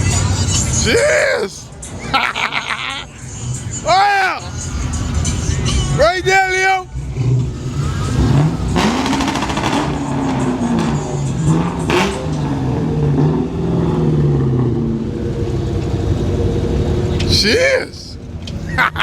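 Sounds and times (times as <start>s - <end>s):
car engine revving: 0.0s - 18.7s.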